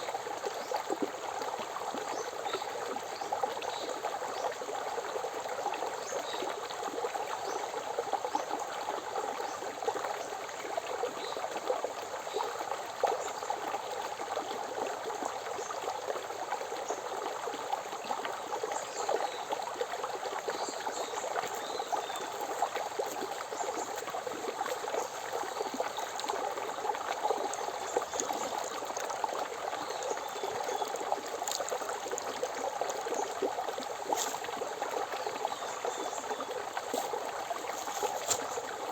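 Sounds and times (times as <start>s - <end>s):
river flowing: 18.0s - 38.9s.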